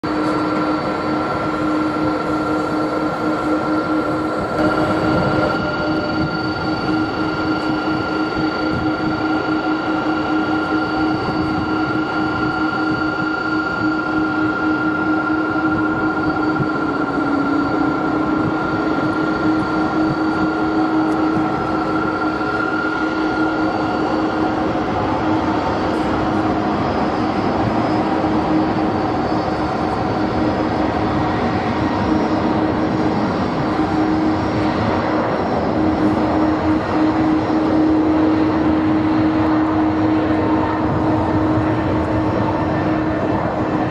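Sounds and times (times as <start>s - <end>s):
high whine: 0.0s - 43.9s.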